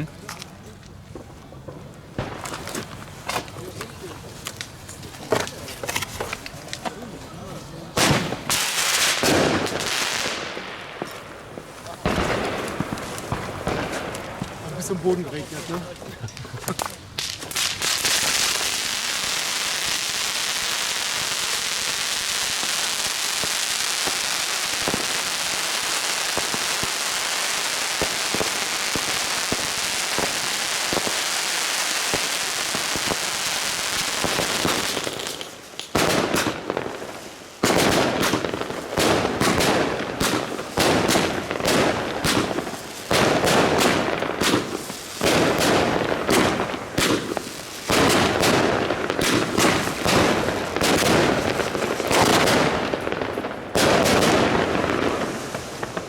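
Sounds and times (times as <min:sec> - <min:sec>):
firework pops: 0:01.2 - 0:07.0, 0:08.0 - 0:14.7, 0:37.6 - 0:53.2
firework launches and bursts: 0:08.0 - 0:14.7, 0:16.8 - 0:56.0
firework hiss: 0:08.0 - 0:56.0.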